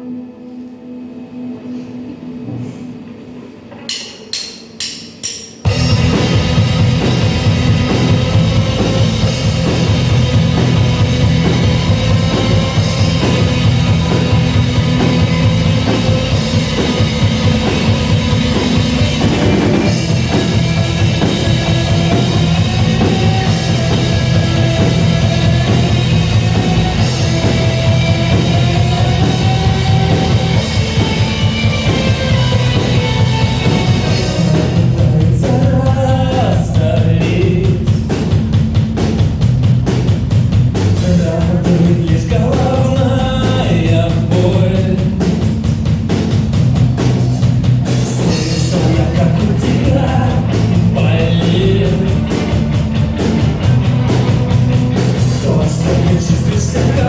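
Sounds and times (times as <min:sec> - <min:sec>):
drum kit: 0:03.7 - 0:57.0
rock band playing live: 0:05.6 - 0:57.0
person singing: 0:33.7 - 0:38.2, 0:41.0 - 0:45.3, 0:48.1 - 0:52.6, 0:55.2 - 0:57.0.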